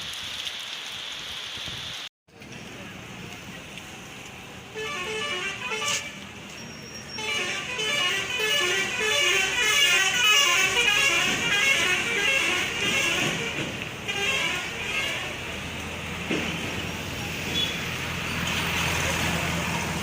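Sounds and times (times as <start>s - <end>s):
road traffic: 2.3s - 20.0s
vehicle horns honking: 4.7s - 15.5s, 17.5s - 17.9s.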